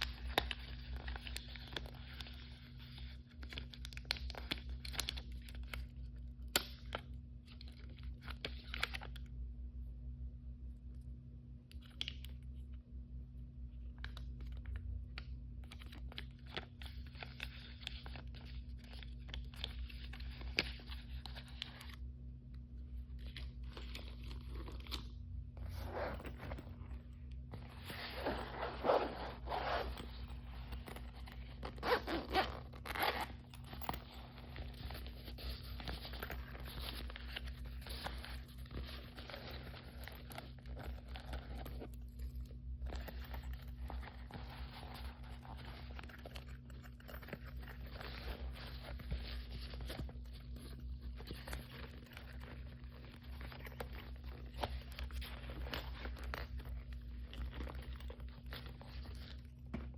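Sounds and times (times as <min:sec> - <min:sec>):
low hum: 0:18.1 - 0:59.9.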